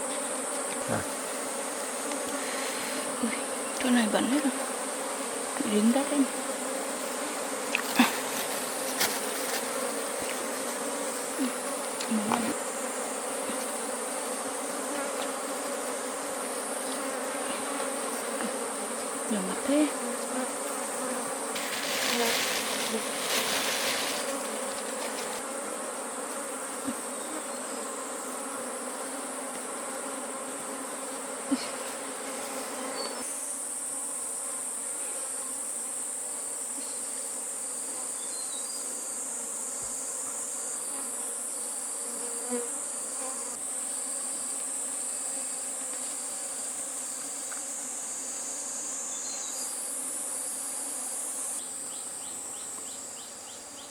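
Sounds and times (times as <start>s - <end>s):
rustling: 7.8s - 10.8s, 21.5s - 25.4s
high-pitched insect chorus: 18.2s - 25.5s, 43.0s - 53.9s.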